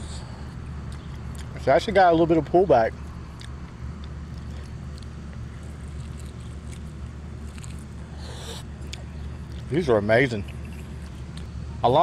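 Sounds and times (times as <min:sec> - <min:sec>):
person chewing: 0:00.5 - 0:01.6, 0:03.3 - 0:09.7.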